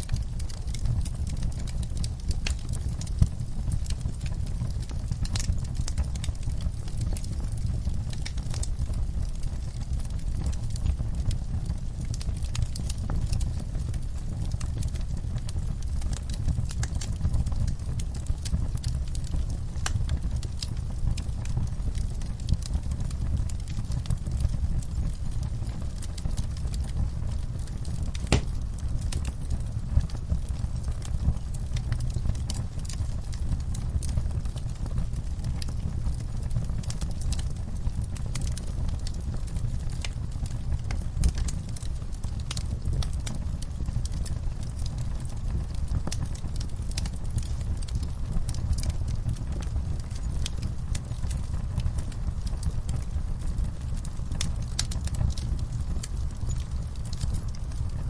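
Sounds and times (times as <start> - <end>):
fire low rumble: 0.0 - 58.0
wood fire crackling: 0.0 - 58.0
loud fire pop: 28.2 - 28.7.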